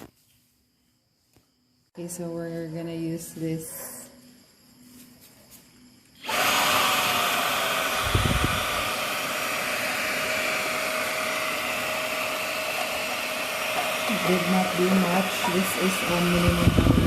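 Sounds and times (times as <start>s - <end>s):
handheld vacuum running: 6.2s - 17.0s.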